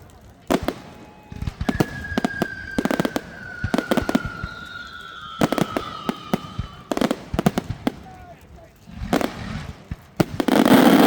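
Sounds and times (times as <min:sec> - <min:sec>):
fireworks bangs and crackles: 0:00.0 - 0:11.0
falling firework whistle: 0:00.6 - 0:07.7.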